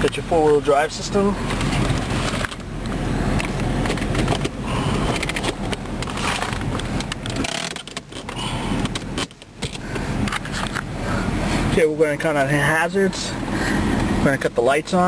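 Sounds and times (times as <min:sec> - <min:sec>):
car engine idling: 0:00.0 - 0:15.0
dashboard control clicks: 0:05.2 - 0:10.9.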